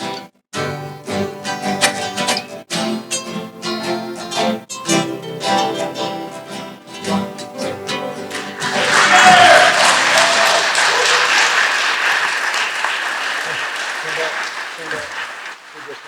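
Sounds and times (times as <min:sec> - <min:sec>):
string orchestra plucking notes: 0:00.0 - 0:10.5.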